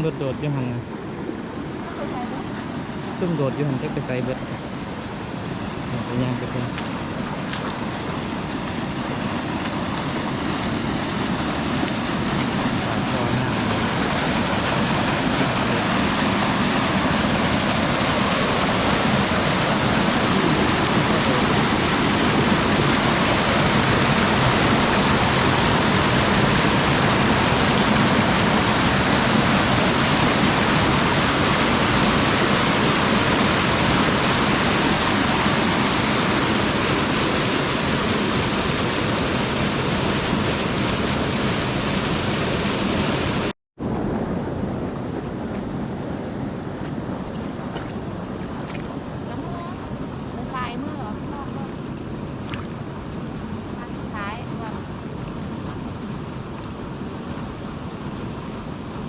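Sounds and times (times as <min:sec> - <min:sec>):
water rushing out of a pipe: 0:05.2 - 0:43.5.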